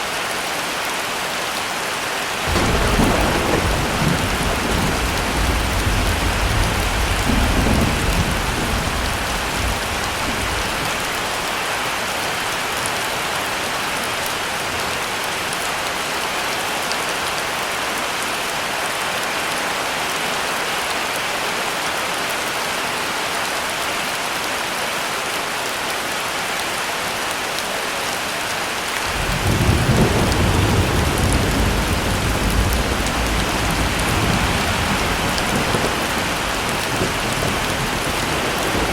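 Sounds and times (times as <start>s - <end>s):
heavy rain falling: 0.0s - 38.9s
thunder rumbling: 2.5s - 11.6s, 29.1s - 38.9s.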